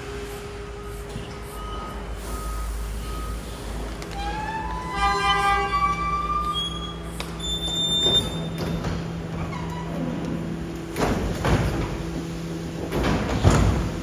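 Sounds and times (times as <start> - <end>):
high squealing of compactor: 0.7 - 10.2
short beeps: 0.8 - 3.6
garbage truck engine running: 6.3 - 14.0.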